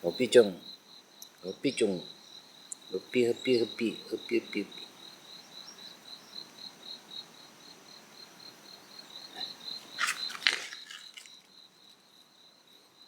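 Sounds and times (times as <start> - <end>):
insect chirping trill: 0.0 - 13.0
rustling and clicks: 9.8 - 11.5.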